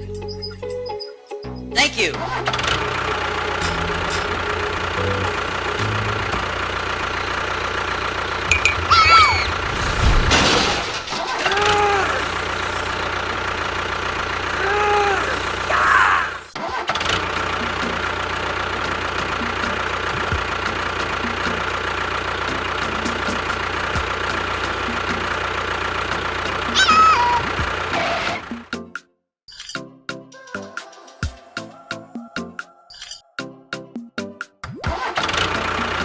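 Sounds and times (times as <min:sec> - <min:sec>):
engine running: 0:02.1 - 0:28.7, 0:35.2 - 0:36.0
rising and falling tones: 0:02.3 - 0:10.7.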